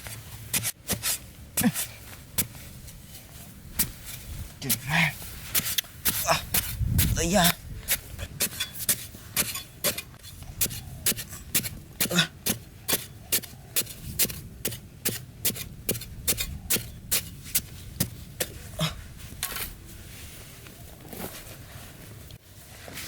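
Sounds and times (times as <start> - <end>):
hand tool striking: 8.4 - 18.6.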